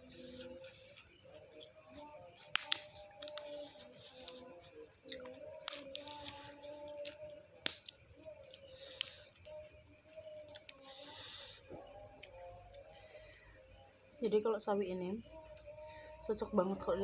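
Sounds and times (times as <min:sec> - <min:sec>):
chewing crisp greens: 0:00.2 - 0:09.1.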